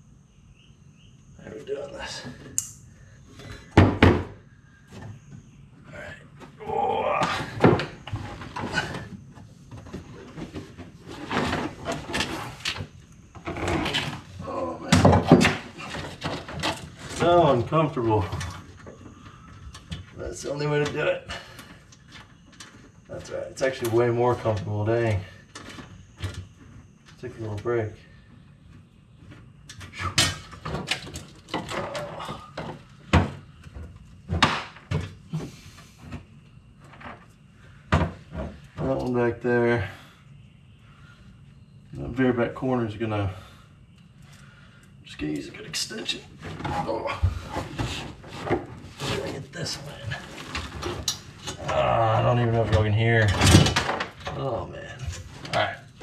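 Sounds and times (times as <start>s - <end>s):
rustling: 46.2s - 54.3s.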